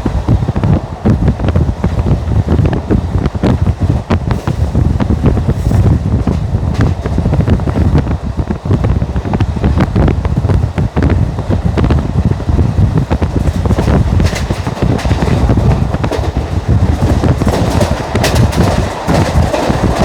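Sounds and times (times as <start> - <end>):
train wheels rumbling on rail: 0.0 - 20.0
wind buffeting microphone: 0.0 - 20.0
clattering and rattling: 5.6 - 7.9, 13.0 - 20.0.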